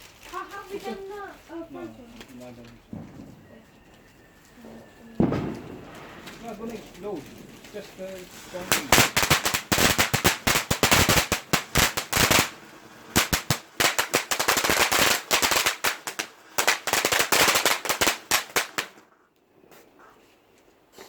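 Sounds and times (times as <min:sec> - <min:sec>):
firework crackling bangs: 0:02.7 - 0:03.6, 0:05.1 - 0:19.1.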